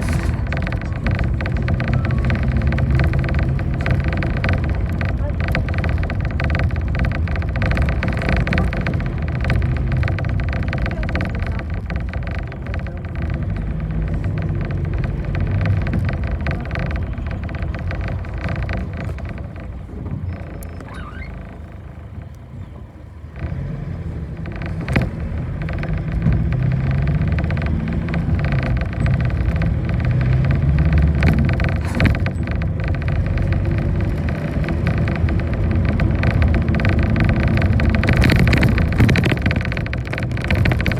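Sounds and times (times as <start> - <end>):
bus engine and road noise: 0.0 - 40.9.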